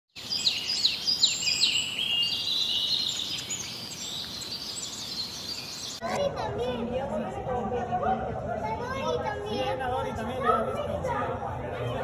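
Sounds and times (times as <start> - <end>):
small birds singing: 0.1 - 6.2.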